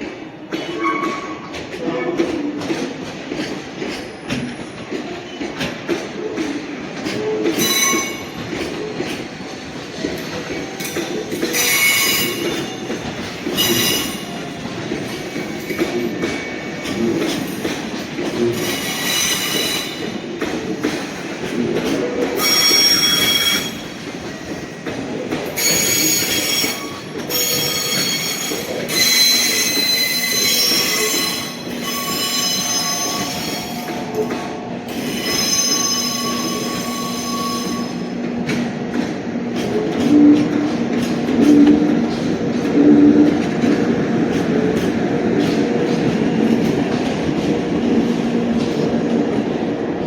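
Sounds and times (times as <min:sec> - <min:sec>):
wheels rumbling on rails: 0:00.0 - 0:50.0
train wheels squealing: 0:00.6 - 0:01.6, 0:07.5 - 0:08.6, 0:10.1 - 0:17.5, 0:18.6 - 0:20.2, 0:22.4 - 0:24.9, 0:25.5 - 0:38.2.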